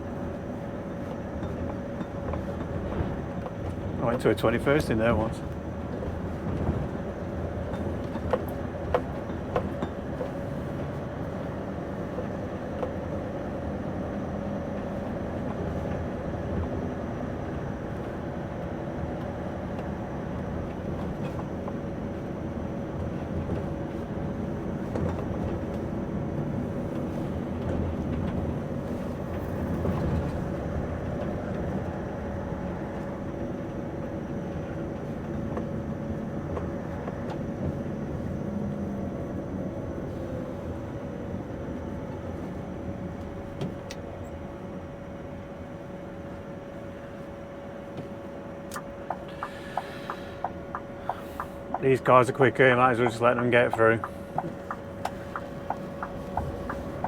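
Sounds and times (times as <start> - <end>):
truck engine running: 48.6 - 57.0.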